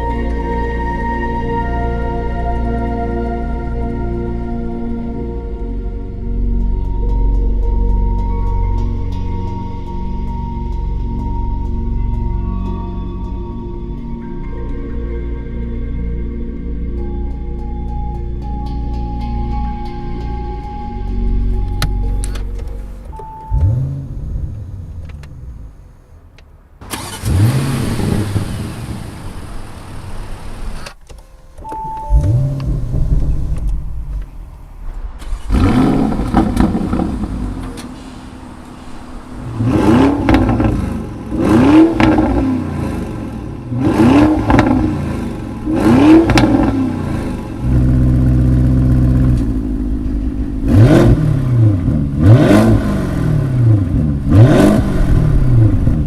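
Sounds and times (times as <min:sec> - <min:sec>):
car engine starting: 0:00.0 - 0:56.0
engine revving: 0:23.5 - 0:26.0, 0:26.8 - 0:31.0, 0:32.1 - 0:56.0
sharp throttle blips: 0:26.8 - 0:29.5.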